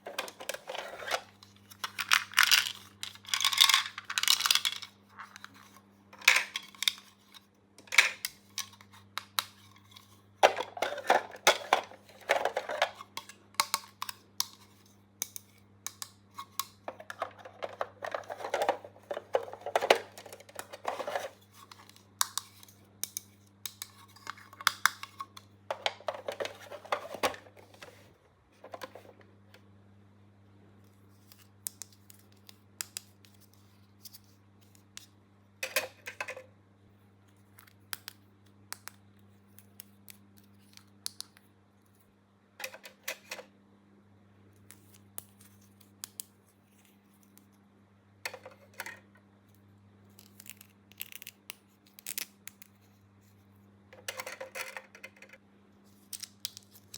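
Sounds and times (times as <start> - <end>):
plastic pieces clicking and tapping: 1.7 - 5.5, 10.4 - 27.4.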